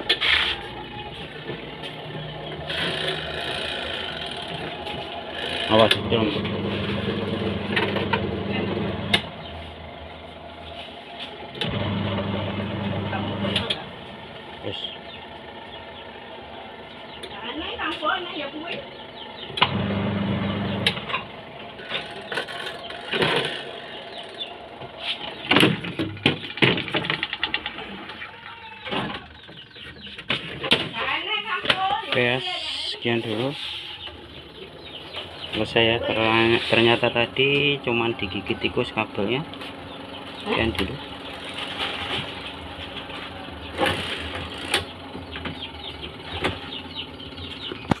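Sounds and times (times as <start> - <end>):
washing machine motor humming: 0.8 - 18.5, 19.4 - 29.6, 34.0 - 48.0
motor humming: 2.4 - 15.8, 19.2 - 26.6.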